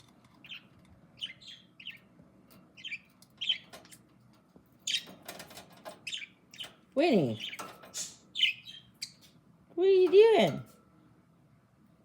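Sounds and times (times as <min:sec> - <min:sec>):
budgie chirping: 0:04.8 - 0:05.2, 0:06.0 - 0:09.3.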